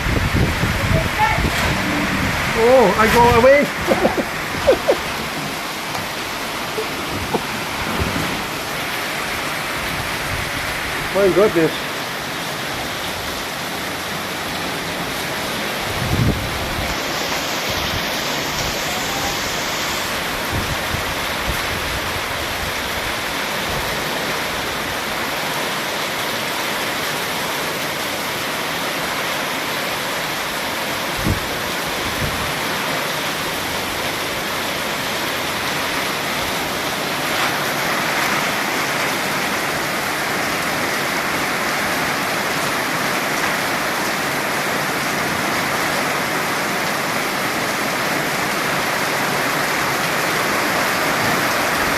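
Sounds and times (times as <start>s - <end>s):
heavy rain pouring: 0.0s - 51.9s
soft low bumps: 0.4s - 8.6s.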